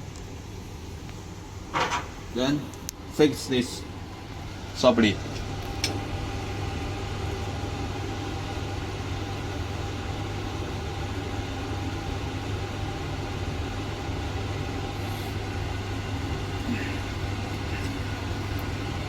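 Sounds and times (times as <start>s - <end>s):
grinder idling hum: 14.5s - 19.0s.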